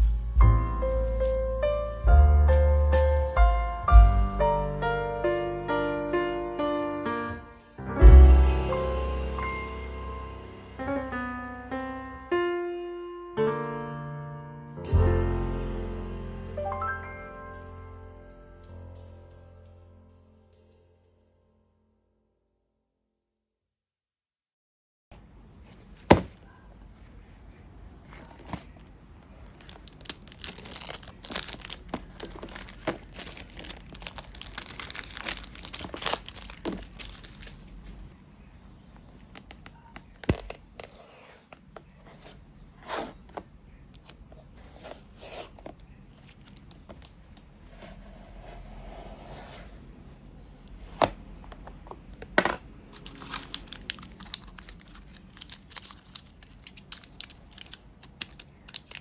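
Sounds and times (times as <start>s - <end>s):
crinkling and tearing: 28.1s - 38.1s, 53.0s - 59.0s.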